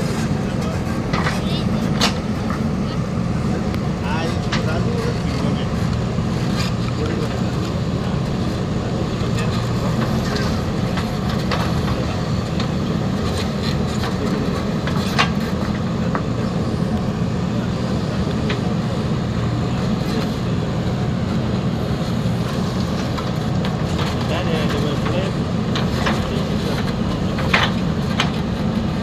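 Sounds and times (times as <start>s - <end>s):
heavy diesel engine running: 0.0s - 29.0s
clanks and knocks: 9.1s - 17.1s, 21.5s - 29.0s.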